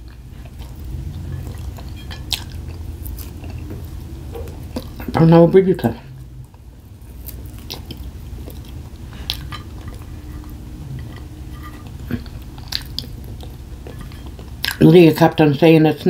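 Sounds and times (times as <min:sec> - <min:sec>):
person chewing food: 0:00.0 - 0:05.2, 0:06.1 - 0:14.8
low room hum: 0:00.0 - 0:16.0.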